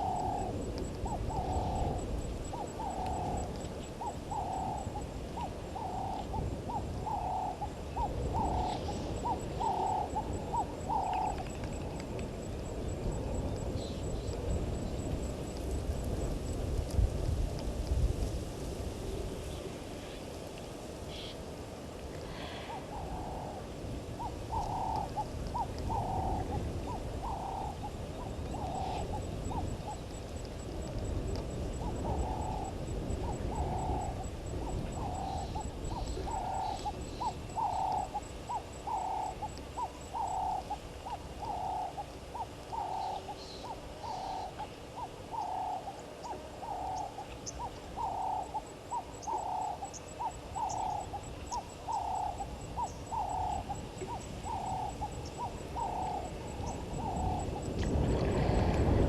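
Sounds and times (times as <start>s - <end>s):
bird hooting call: 0.0s - 11.9s, 22.2s - 30.2s, 31.7s - 58.6s.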